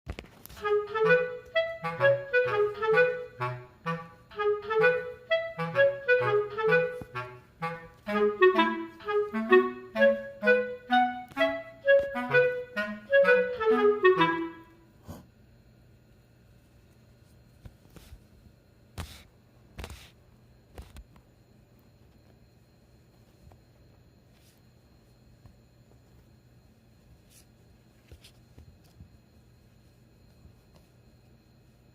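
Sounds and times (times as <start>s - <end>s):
quick melody of short notes: 0.6s - 14.8s.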